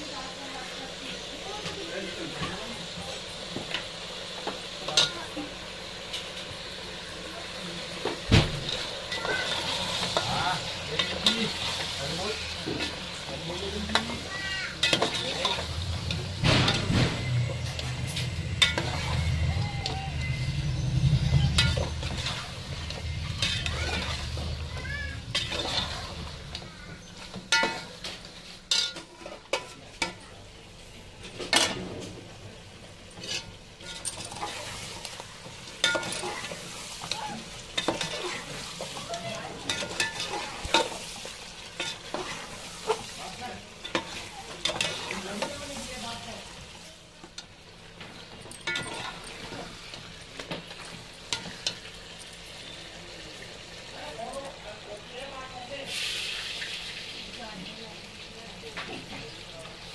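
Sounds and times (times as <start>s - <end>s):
chicken sizzling in a pot: 0.0s - 59.9s
metal spoon scraping a pot: 14.8s - 19.4s, 20.3s - 24.6s, 25.2s - 26.4s, 33.2s - 35.2s
low rumble: 15.6s - 26.5s.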